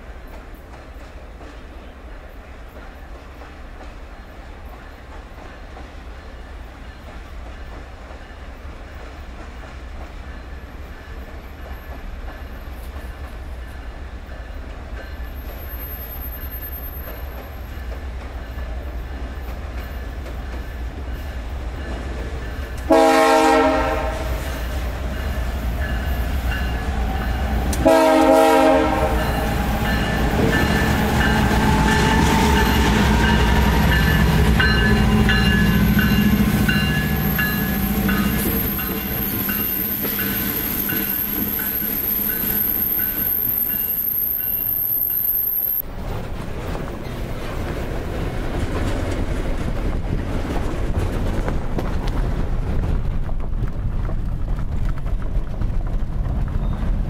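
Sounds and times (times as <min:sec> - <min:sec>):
diesel locomotive engine rumble: 0:00.0 - 0:57.0
air horn blasts: 0:22.9 - 0:24.5, 0:27.8 - 0:29.8.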